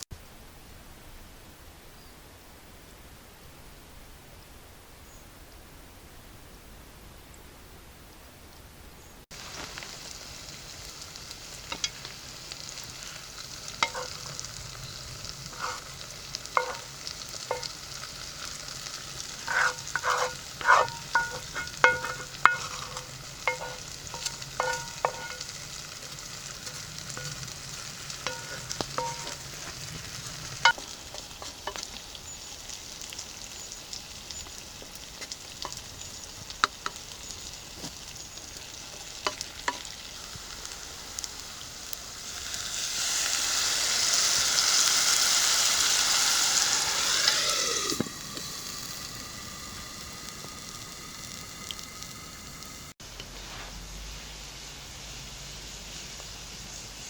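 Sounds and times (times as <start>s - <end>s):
food sizzling in oil: 9.3s - 57.0s
metal utensil scraping a pot: 11.7s - 12.2s, 13.0s - 32.0s.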